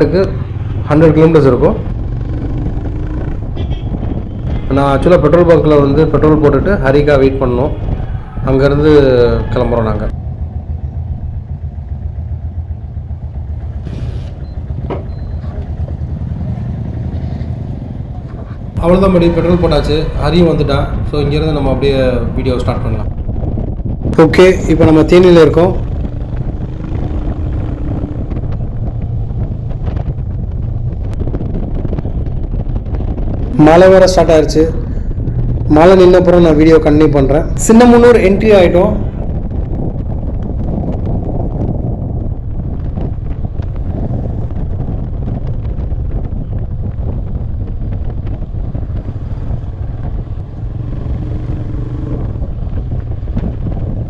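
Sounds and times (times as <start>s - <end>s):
motorcycle engine rumble: 0.0s - 54.0s
wind buffeting microphone: 0.0s - 54.0s.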